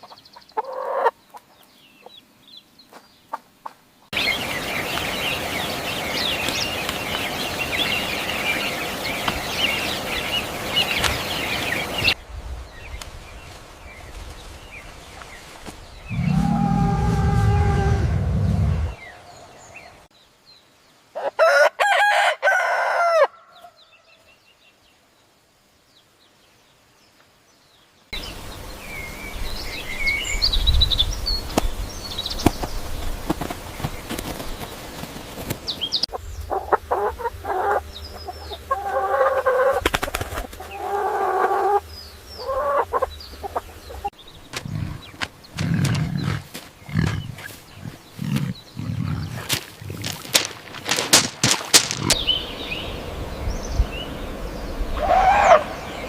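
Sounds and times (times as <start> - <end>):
repeated pitched fowl calls: 0.0 - 1.4, 16.1 - 19.5, 21.2 - 24.0, 36.1 - 47.6, 49.4 - 52.4, 54.9 - 56.0
wing flapping: 13.0 - 19.1, 32.4 - 36.1, 39.4 - 40.8, 44.5 - 52.6
loud crow-like fowl call: 21.2 - 23.8, 55.0 - 56.0.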